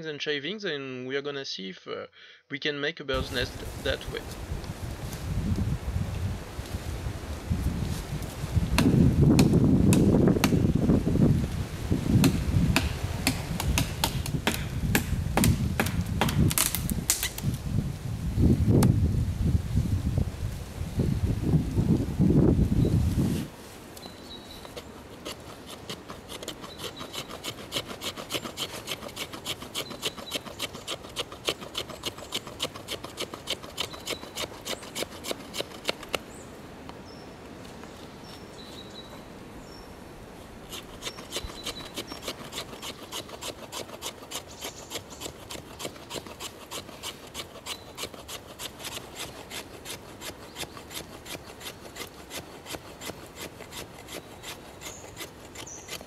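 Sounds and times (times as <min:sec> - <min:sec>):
knife scraping wooden log: 0:23.3 - 0:36.2, 0:38.2 - 0:39.2, 0:40.4 - 0:56.0.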